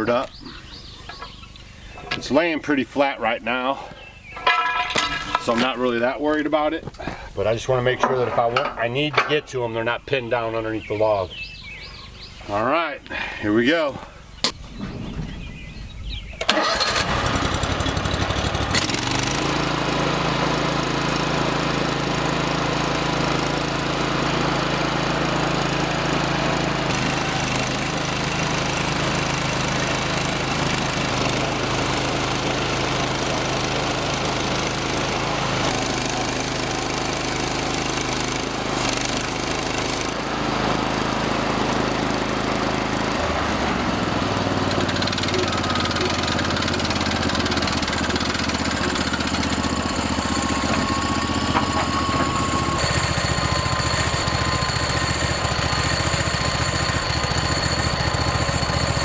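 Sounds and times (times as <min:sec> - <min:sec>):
small gasoline engine running: 0:04.3 - 0:05.8, 0:16.4 - 0:59.0.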